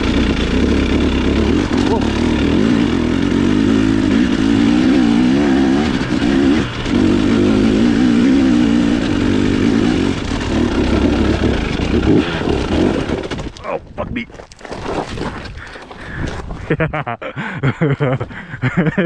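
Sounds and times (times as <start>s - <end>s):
dirt bike engine running hard: 0.0s - 13.6s.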